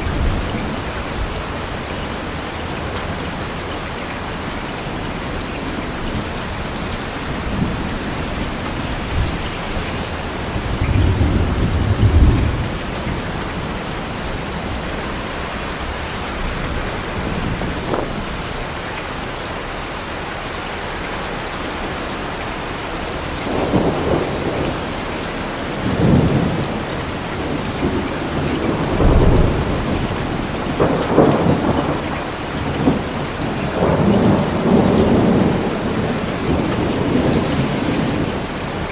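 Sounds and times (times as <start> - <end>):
heavy rain: 0.0 - 38.9
rolling thunder: 5.2 - 18.9, 23.4 - 38.9.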